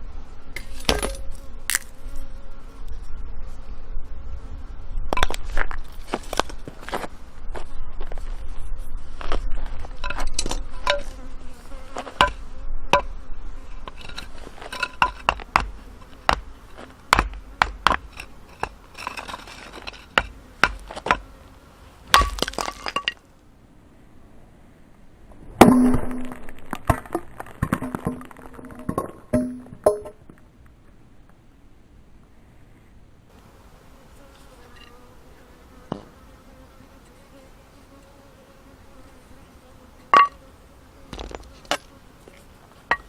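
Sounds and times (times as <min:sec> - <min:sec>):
firewood being chopped: 0:15.0 - 0:21.3, 0:22.1 - 0:23.2.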